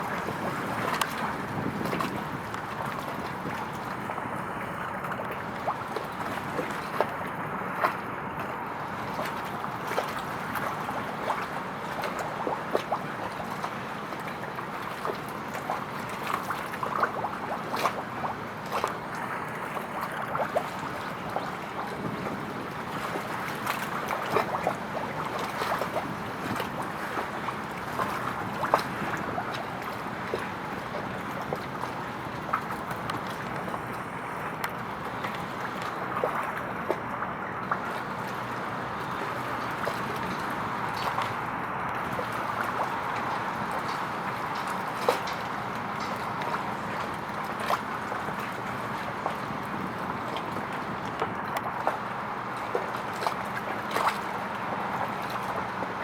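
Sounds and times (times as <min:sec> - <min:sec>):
small splashes and ticks: 0:00.0 - 0:56.0
wind: 0:00.0 - 0:56.0
water washing: 0:20.2 - 0:56.0.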